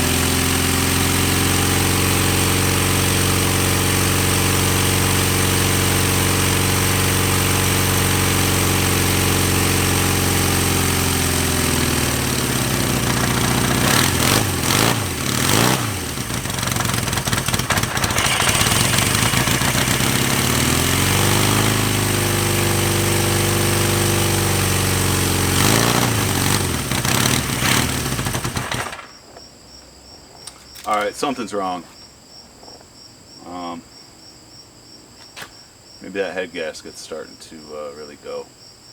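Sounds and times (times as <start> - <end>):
motorcycle engine idling and revving: 0.0 - 29.2.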